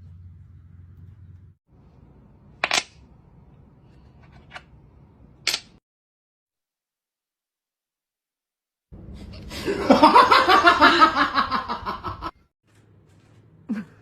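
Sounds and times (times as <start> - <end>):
person laughing hard: 9.4 - 12.3.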